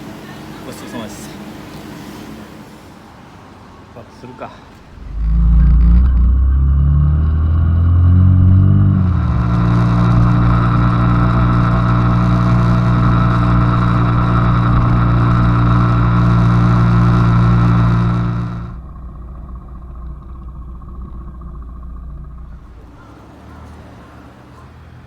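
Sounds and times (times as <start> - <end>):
rushing noise: 4.8 - 23.4
motorcycle engine accelerating: 4.8 - 24.6.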